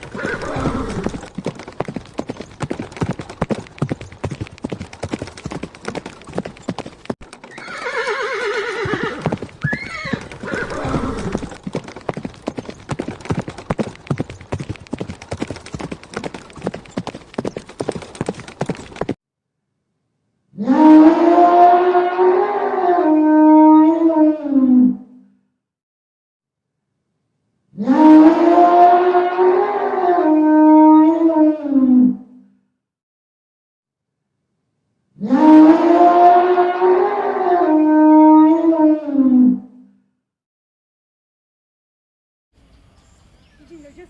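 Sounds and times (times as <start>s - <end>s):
horse neighing: 0.0s - 1.2s, 7.5s - 11.6s
horse hooves clip-clopping: 0.0s - 19.2s.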